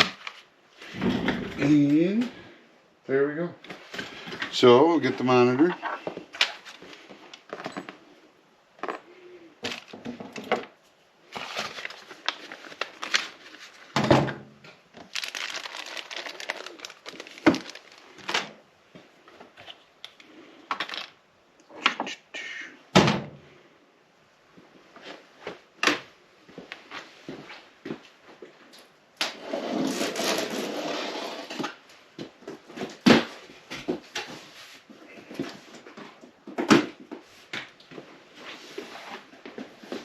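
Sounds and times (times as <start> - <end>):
rustling and scraping: 11.2 - 14.0, 29.3 - 36.3, 37.2 - 40.0.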